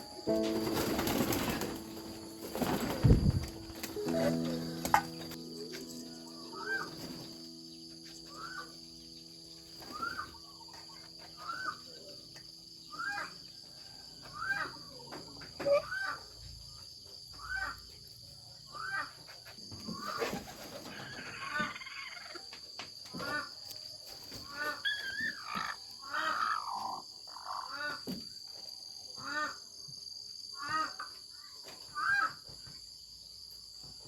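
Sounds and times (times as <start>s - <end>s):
soft music tones: 0.0s - 13.5s
poultry calling: 1.4s - 7.6s, 8.2s - 8.8s, 9.7s - 12.1s, 12.9s - 13.4s.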